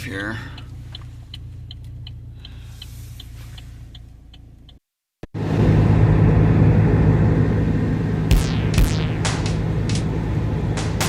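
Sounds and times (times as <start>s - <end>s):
turn signal ticking: 0.0s - 4.8s
car driving with road rumble: 0.0s - 11.0s.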